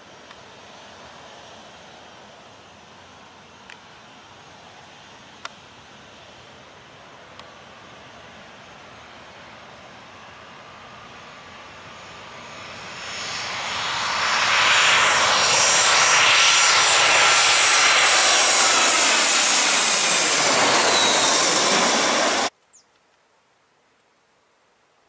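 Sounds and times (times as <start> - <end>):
airliner roar overhead: 6.9 - 22.5.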